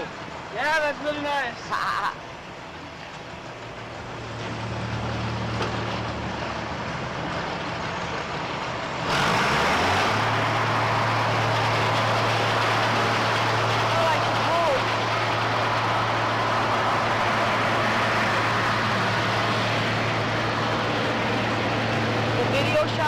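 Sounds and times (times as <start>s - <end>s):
engine running with low hum: 1.7s - 23.0s.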